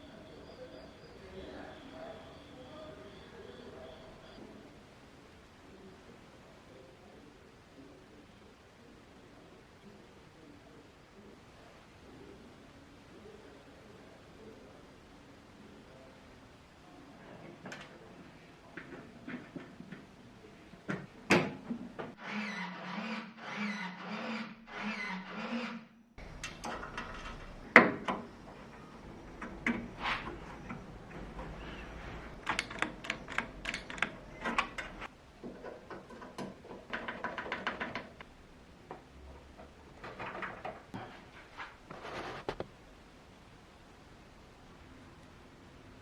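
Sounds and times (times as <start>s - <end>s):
metal parts clicking and tapping: 26.2s - 30.0s, 32.3s - 38.2s.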